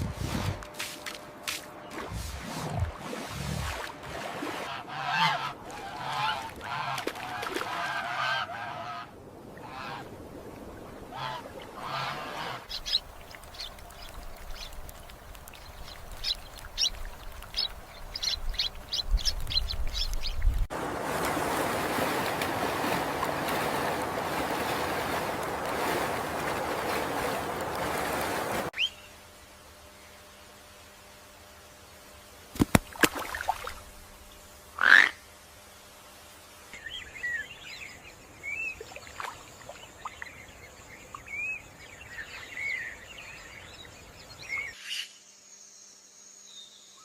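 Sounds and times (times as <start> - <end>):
birds honking: 11.8 - 28.7
short high-pitched bird calls: 12.7 - 14.8
steady rushing noise: 12.7 - 28.7.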